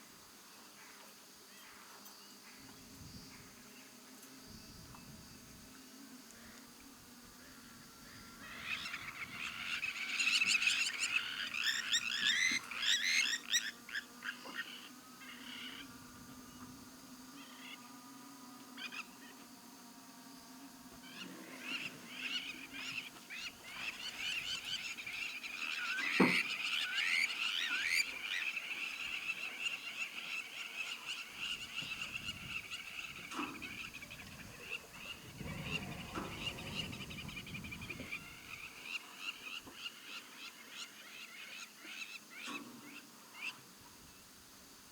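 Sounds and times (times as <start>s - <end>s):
frogs and birds chirping: 0.5s - 44.4s.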